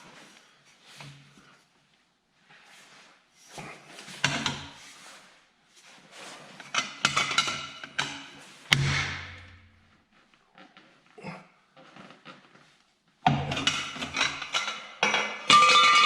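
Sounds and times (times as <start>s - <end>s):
metal tools clanking on steel: 13.3s - 16.0s.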